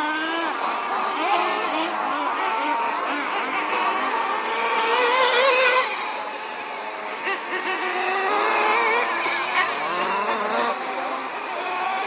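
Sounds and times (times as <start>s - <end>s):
small off-road engines revving: 0.0s - 12.0s.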